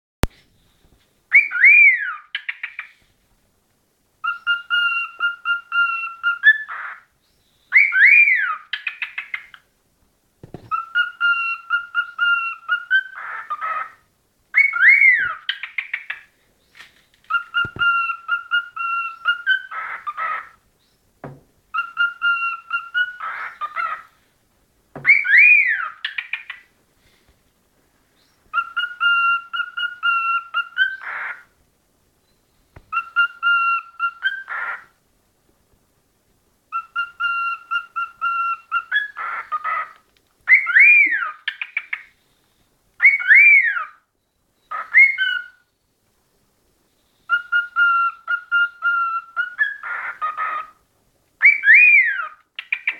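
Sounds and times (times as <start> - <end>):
cockatiel whistling song: 1.3 - 2.9, 4.2 - 7.0, 7.7 - 9.6, 10.6 - 13.9, 14.5 - 16.2, 17.3 - 20.6, 21.7 - 24.0, 25.0 - 26.6, 28.5 - 31.4, 32.9 - 34.8, 36.7 - 42.0, 43.0 - 45.7, 47.3 - 50.8, 51.4 - 52.9.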